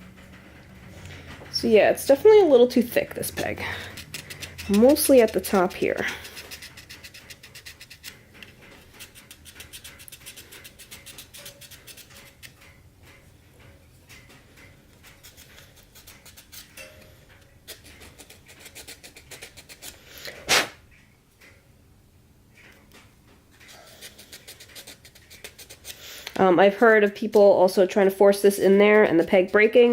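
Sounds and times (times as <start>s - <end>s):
file rasping on plastic: 3.8s - 8.2s, 8.8s - 12.5s, 15.1s - 16.8s, 17.6s - 20.0s, 23.6s - 26.0s.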